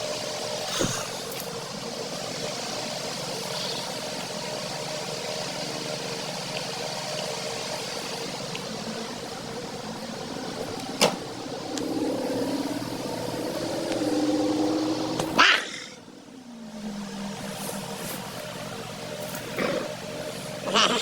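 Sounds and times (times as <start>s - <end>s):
background hum: 0.0s - 21.0s
dog whining: 15.3s - 16.0s.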